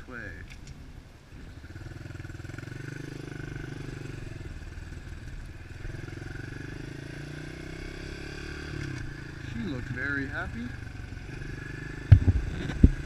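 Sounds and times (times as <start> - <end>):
motorbike engine running: 1.5 - 13.0.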